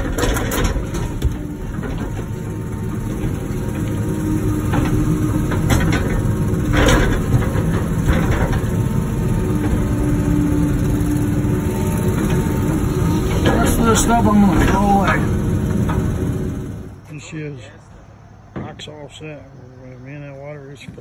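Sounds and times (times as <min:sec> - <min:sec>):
excavator engine running: 0:00.0 - 0:17.2.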